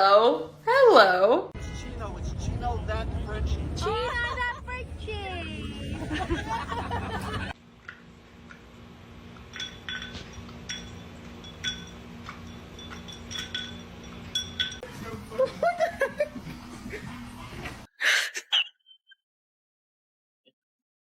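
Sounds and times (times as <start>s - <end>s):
light ringing clinks: 9.4s - 14.8s.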